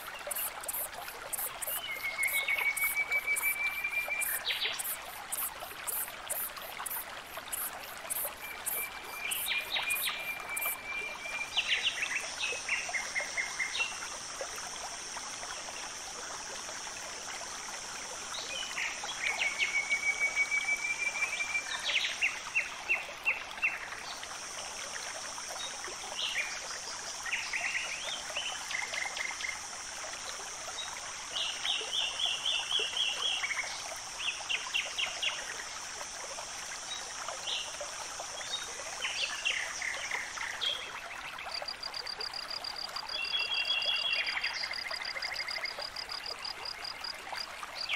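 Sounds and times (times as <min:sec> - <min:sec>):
rapid high ticks: 0:00.0 - 0:10.8
steady high-pitched hiss: 0:00.0 - 0:47.9
small birds chirping and trilling: 0:00.3 - 0:10.8.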